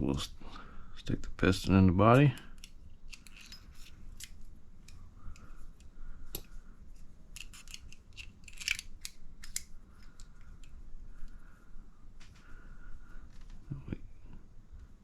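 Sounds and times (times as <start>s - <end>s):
small plastic parts clicking: 2.1s - 6.5s, 7.3s - 10.8s.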